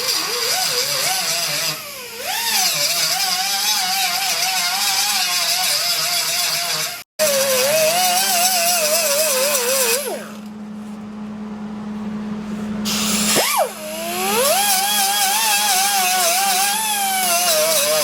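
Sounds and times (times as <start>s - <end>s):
grinder whining: 0.0s - 11.4s, 12.8s - 18.0s.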